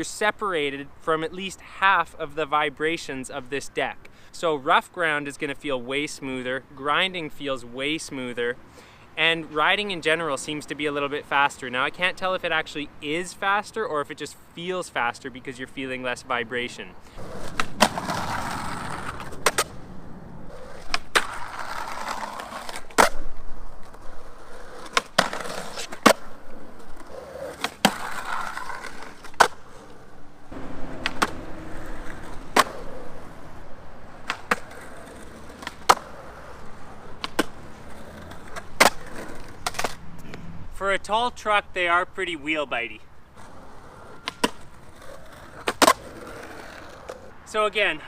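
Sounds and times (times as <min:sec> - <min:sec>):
skateboard wheels rolling on pavement: 0:00.0 - 0:48.0
skateboard clacks: 0:17.2 - 0:19.7, 0:31.0 - 0:33.2, 0:34.2 - 0:40.0, 0:43.4 - 0:47.2.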